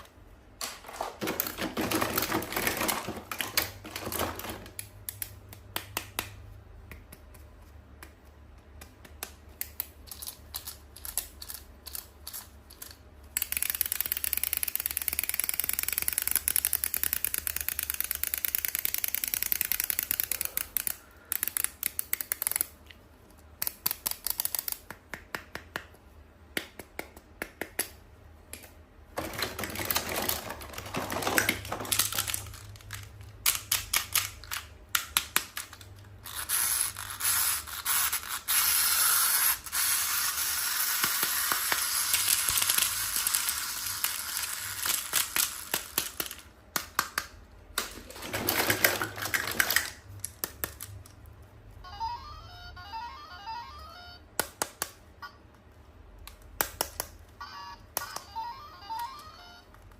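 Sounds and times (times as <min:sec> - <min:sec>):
packaging crinkling: 0:29.2 - 0:34.6.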